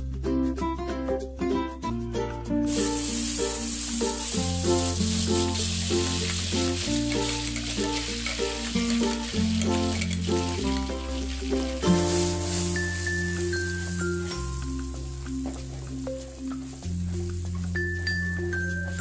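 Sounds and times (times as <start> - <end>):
background music: 0.0 - 19.0
chili paste sizzling in oil: 2.7 - 19.0.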